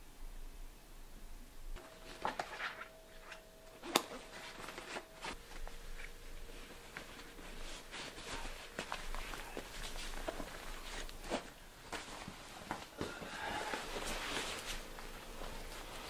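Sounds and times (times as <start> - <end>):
faint steady hum: 0.0 - 16.0
clothes rustling: 1.8 - 16.0
footsteps on hard floor: 3.9 - 16.0.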